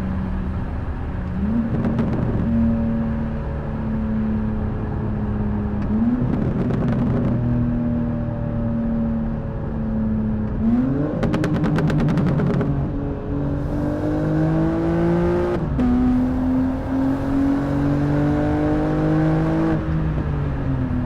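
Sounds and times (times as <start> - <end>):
car engine revving: 0.3 - 3.6, 4.2 - 7.8, 10.4 - 20.2.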